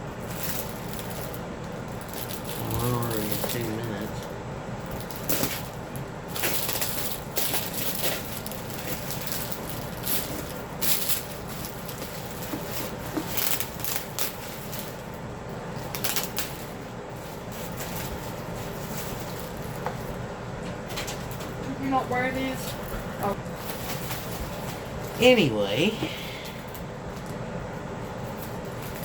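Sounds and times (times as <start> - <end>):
packaging rustling and crinkling: 0.2 - 20.2, 22.7 - 25.1.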